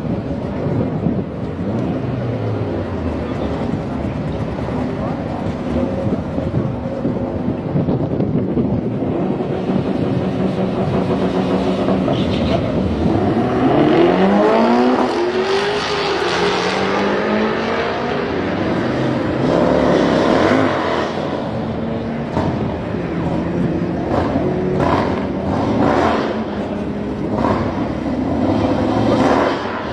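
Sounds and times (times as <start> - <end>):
motorcycle engine revving: 9.0 - 29.9.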